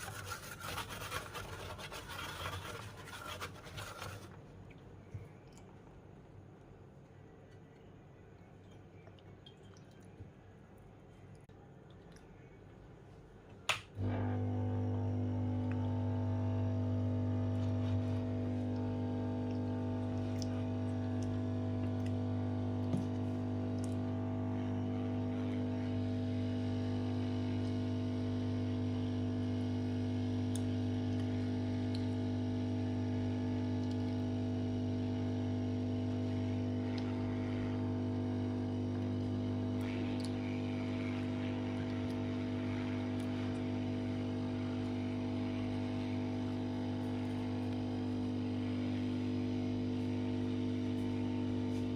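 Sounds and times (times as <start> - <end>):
speaker buzzing hum: 13.6 - 51.9.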